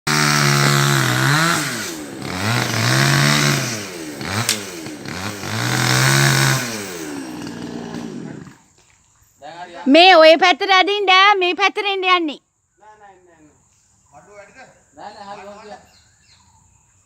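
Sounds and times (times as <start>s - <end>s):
chainsaw engine revving: 0.1s - 8.8s
sharp click: 4.4s - 4.7s.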